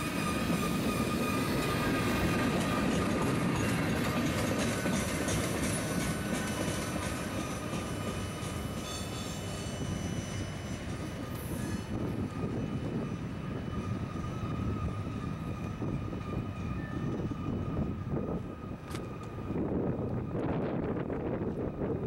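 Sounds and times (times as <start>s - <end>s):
train wheels rumbling on rails: 0.0s - 22.0s
faint high ringing tone: 8.7s - 11.0s.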